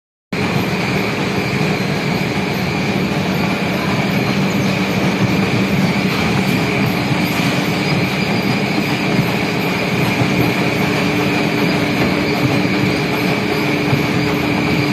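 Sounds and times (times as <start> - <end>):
high machine whine: 0.4 - 14.9
low machine hum: 0.4 - 14.9
machinery mechanical din: 0.4 - 14.9.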